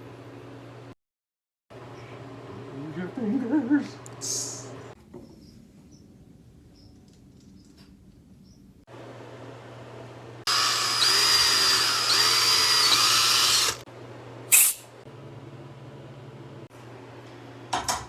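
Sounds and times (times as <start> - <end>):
power drill whining: 10.5 - 13.8.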